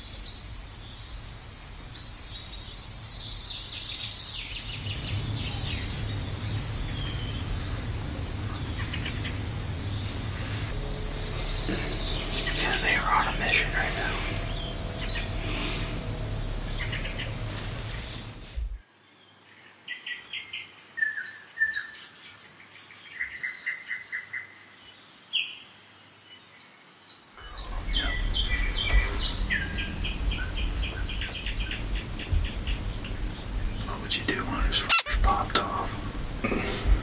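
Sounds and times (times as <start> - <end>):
low steady rumble: 0.0 - 18.8, 27.4 - 37.0
small birds chirping: 0.0 - 37.0.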